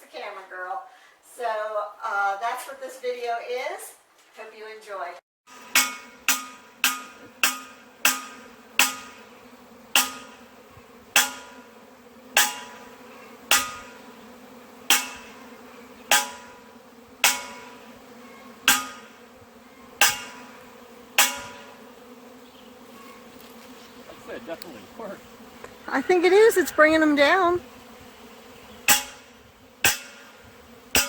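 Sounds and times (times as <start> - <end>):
honeybee swarm buzzing: 5.5 - 31.0
wrench banging on metal pot: 5.6 - 9.3, 10.0 - 10.4, 11.2 - 11.6, 12.4 - 12.8, 13.5 - 13.9, 14.9 - 15.4, 16.1 - 16.6, 17.2 - 17.8, 18.7 - 19.2, 20.0 - 20.5, 21.2 - 21.7, 28.9 - 30.4.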